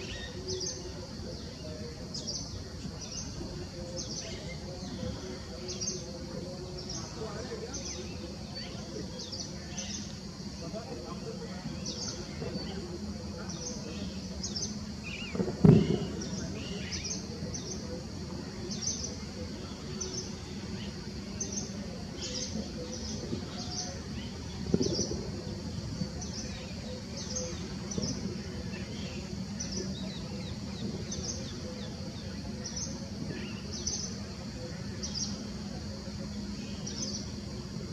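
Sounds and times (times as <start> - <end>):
birds chirping: 0.0 - 37.9
steady high hiss: 0.0 - 37.9.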